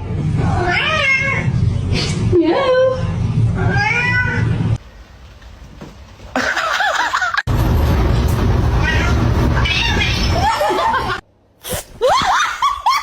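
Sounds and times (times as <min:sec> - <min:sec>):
loud low rumble: 0:00.0 - 0:04.8, 0:07.5 - 0:11.2.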